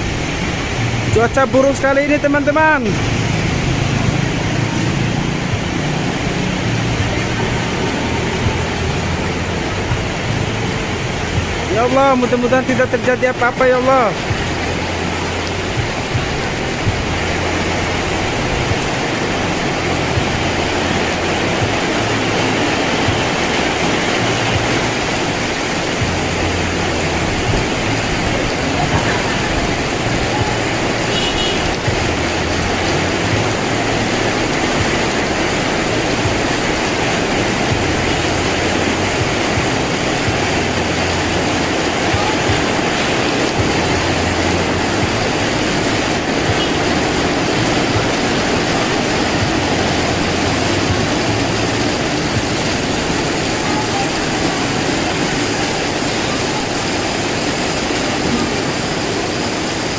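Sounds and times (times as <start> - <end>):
strong wind: 0.0 - 1.4
heavy rain: 0.0 - 59.9.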